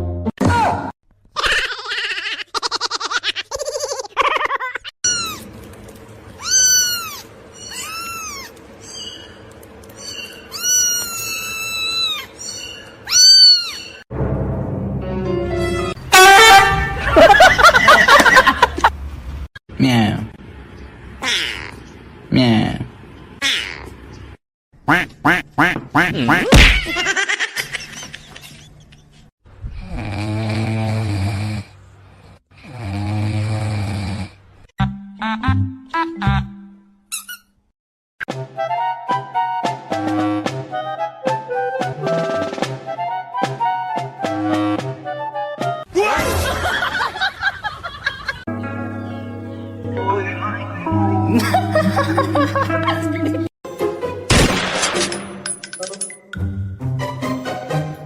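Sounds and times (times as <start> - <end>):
cat meowing: 6.4 - 8.6, 10.5 - 12.3, 13.0 - 13.9
pet snoring: 29.7 - 34.4.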